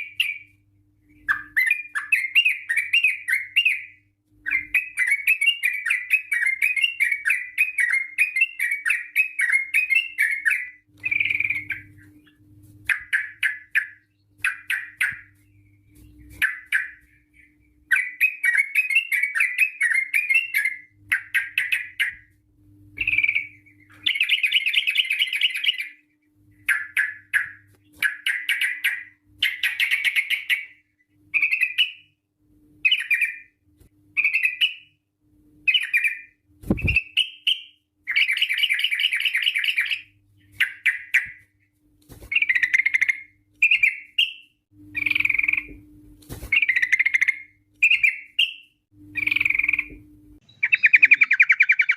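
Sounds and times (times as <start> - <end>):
bird singing bubbly chatter: 0.0 - 22.3, 23.0 - 26.0, 42.3 - 45.8, 46.5 - 51.9
faint steady hum: 0.0 - 51.9.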